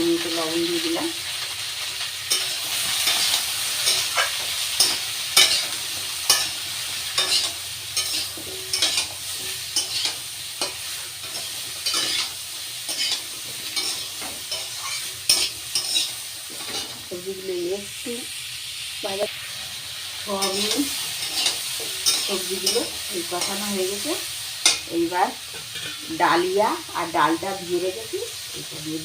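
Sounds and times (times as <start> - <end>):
vegetables sizzling in hot oil: 0.0 - 29.0
spoon scraping a pan: 2.3 - 17.0, 20.4 - 24.0, 24.6 - 26.2.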